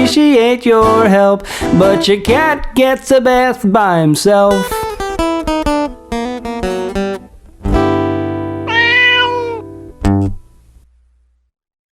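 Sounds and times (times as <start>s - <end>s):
acoustic guitar chords: 0.0s - 10.8s
cat meowing: 8.7s - 9.7s.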